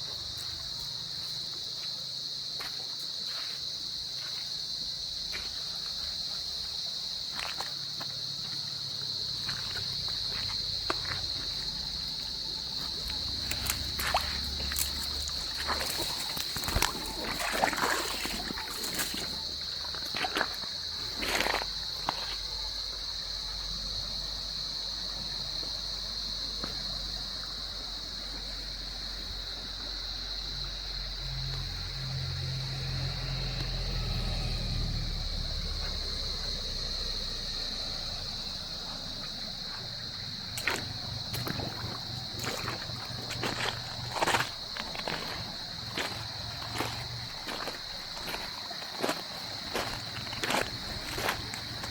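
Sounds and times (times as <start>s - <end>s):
insects droning: 0.0s - 51.9s
stream water trickling over rocks: 12.9s - 22.1s, 40.5s - 46.8s.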